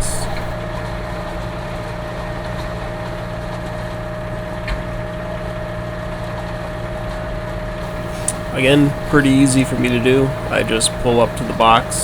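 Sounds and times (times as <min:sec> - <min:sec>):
diesel engine idling: 0:00.0 - 0:00.6, 0:07.8 - 0:12.0
thin whine: 0:00.0 - 0:00.6, 0:07.8 - 0:12.0.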